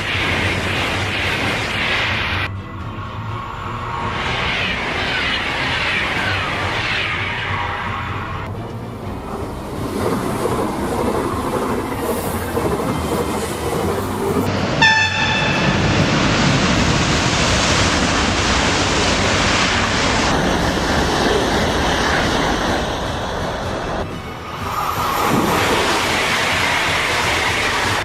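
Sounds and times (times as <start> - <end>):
high-speed train passing: 0.0 - 28.0
train horn blast: 14.8 - 16.2.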